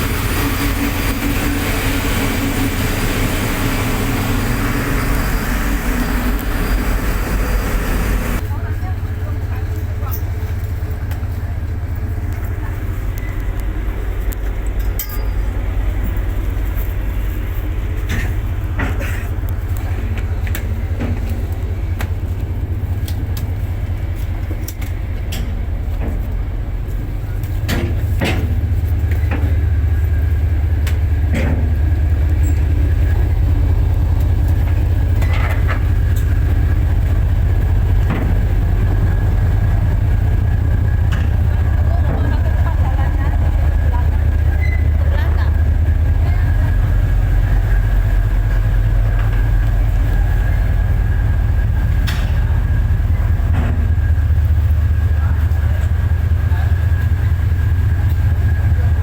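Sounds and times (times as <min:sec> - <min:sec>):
ferry engines droning: 0:00.0 - 0:59.0.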